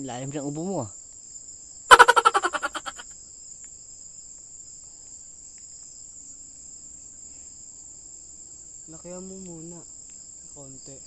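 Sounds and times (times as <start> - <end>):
crickets and insects trilling: 0.0 - 11.0
burst of rapid pitched pulses: 1.9 - 3.0.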